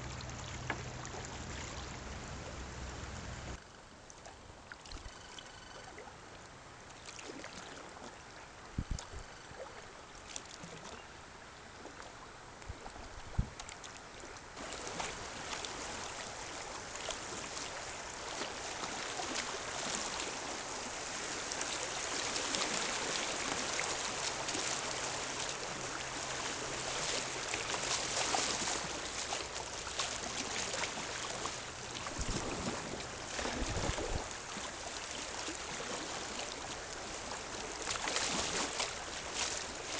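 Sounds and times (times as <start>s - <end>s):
river water rushing and splashing: 0.0s - 3.6s, 13.7s - 39.9s.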